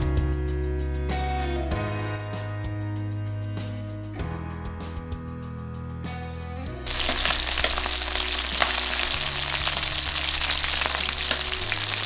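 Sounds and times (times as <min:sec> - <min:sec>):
background music: 0:05.9 - 0:12.0
chicken frying in hot oil: 0:06.9 - 0:12.0.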